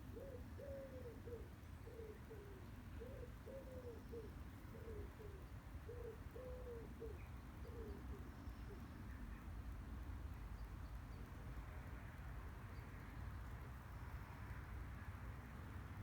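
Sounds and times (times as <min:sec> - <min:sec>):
dove cooing: 0:00.1 - 0:08.0.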